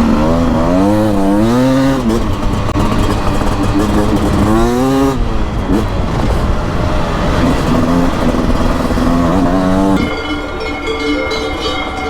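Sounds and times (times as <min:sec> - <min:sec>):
two-stroke motorcycle engine revving: 0:00.0 - 0:12.0.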